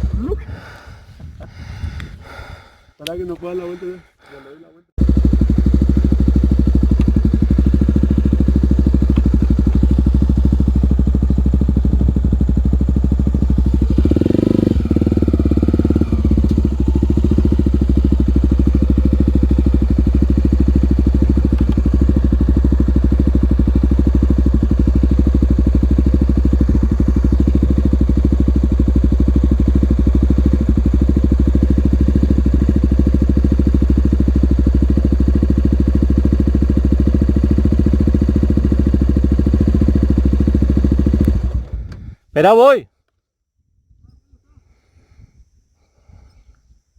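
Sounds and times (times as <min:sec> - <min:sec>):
motorcycle engine running: 0:05.0 - 0:41.9.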